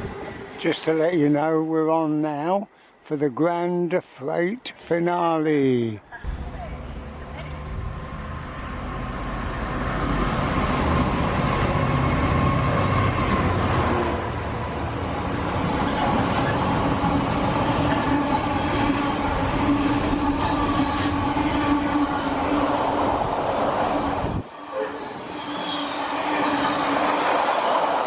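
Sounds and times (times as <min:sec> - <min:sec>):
freight train wheels on rail: 0:06.2 - 0:28.0
low humming tone: 0:06.3 - 0:10.0.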